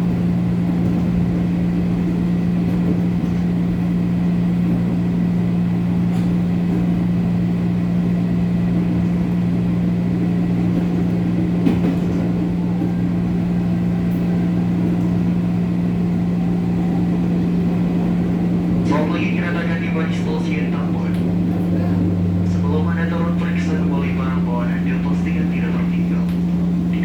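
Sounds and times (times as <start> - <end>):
traction motor hum: 0.0 - 27.0
wheel and rail noise: 8.4 - 24.4.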